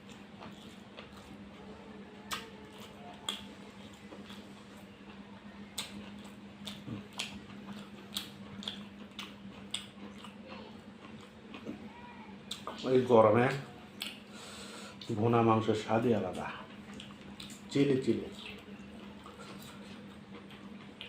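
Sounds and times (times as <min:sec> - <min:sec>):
wet chewing and mouth smacks: 0:00.0 - 0:01.5, 0:02.2 - 0:11.8, 0:13.9 - 0:14.3, 0:16.3 - 0:21.0.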